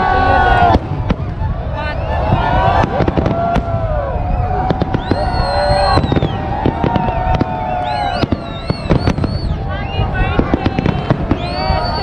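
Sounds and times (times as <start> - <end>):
fireworks bangs and crackles: 0.0 - 12.0
fireworks whistling: 0.0 - 12.0.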